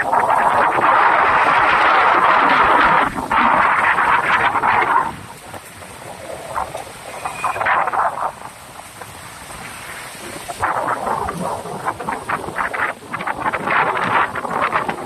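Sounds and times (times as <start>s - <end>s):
gusty wind buffeting microphone: 0.0s - 15.0s
rain falling: 0.0s - 15.0s.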